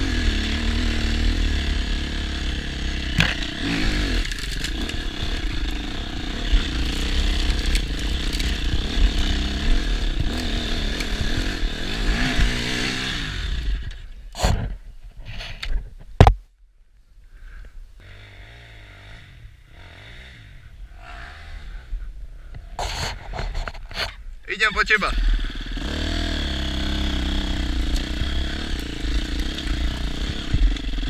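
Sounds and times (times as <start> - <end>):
motorcycle engine revving: 0.0 - 14.1, 18.0 - 21.9, 25.0 - 31.0.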